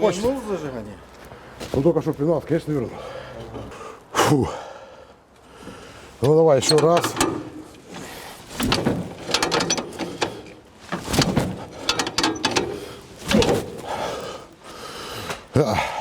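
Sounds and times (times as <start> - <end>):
engine hand cranked: 6.6 - 14.5.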